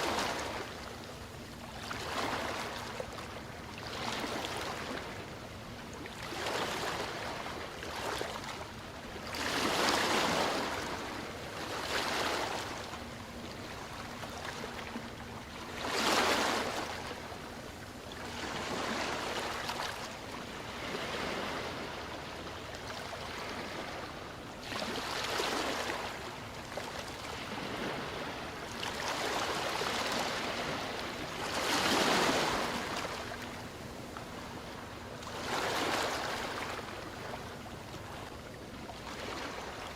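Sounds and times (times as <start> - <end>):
ocean waves breaking: 0.0 - 0.8, 9.3 - 17.4, 18.1 - 38.3.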